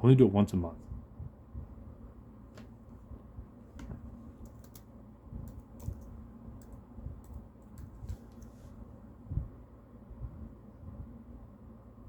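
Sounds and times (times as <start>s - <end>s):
typing on laptop keyboard: 4.4s - 8.5s.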